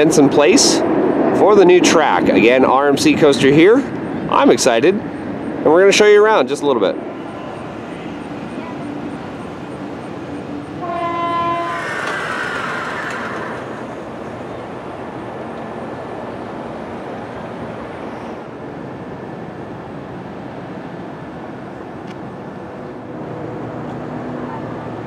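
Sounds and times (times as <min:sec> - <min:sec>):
rush of noise and rumble: 0:00.0 - 0:10.8, 0:11.6 - 0:25.0
horn blast: 0:10.8 - 0:13.9.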